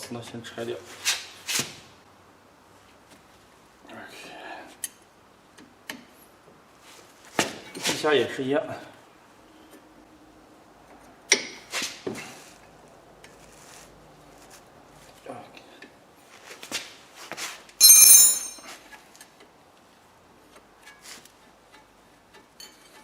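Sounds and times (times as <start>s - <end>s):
ringing metal clank: 17.8s - 18.6s.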